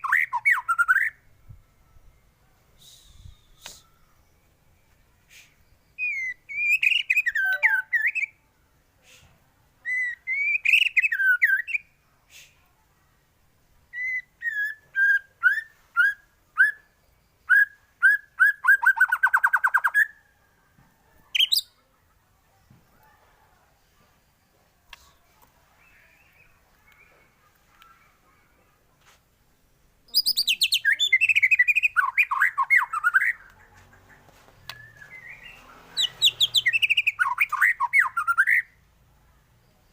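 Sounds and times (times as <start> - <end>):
bird singing whistled phrases: 0.0 - 1.2, 2.8 - 4.5, 5.4 - 8.4, 9.8 - 11.9, 13.9 - 20.2, 30.1 - 33.4, 34.7 - 38.7.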